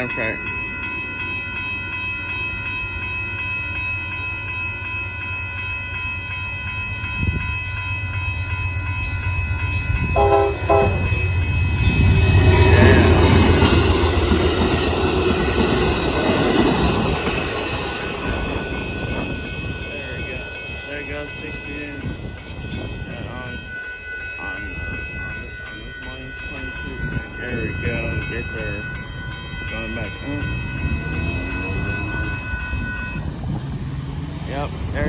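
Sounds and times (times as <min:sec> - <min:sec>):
crossing bell ringing: 0:00.0 - 0:35.0
train passing rumble: 0:00.0 - 0:35.0
train horn blast: 0:10.0 - 0:14.2, 0:29.6 - 0:33.3.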